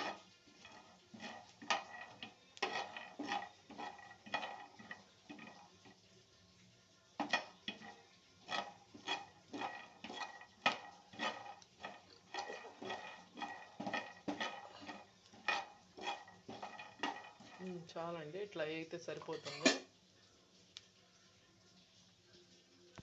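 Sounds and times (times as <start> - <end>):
spatula scraping a pan: 0.0 - 6.1, 7.2 - 18.0.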